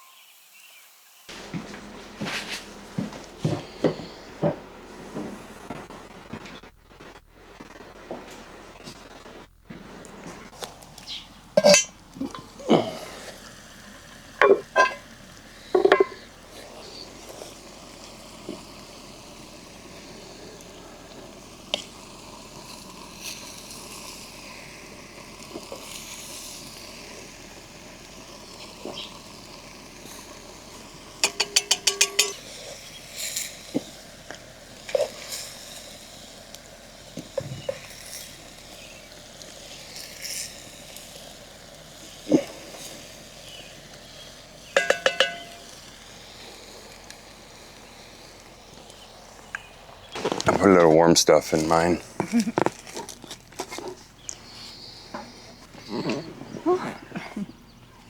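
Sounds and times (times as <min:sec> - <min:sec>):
background hiss: 0:00.0 - 0:58.0
utensils clinking on dishes: 0:11.6 - 0:12.9, 0:14.4 - 0:16.3, 0:31.2 - 0:32.8, 0:44.8 - 0:45.8
ringing metallic clinks: 0:31.2 - 0:32.4, 0:44.8 - 0:45.8.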